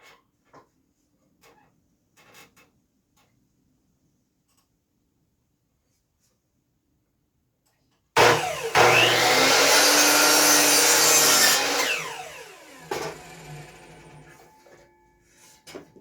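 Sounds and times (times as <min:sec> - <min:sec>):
electric saw cutting wood: 0:08.2 - 0:14.4.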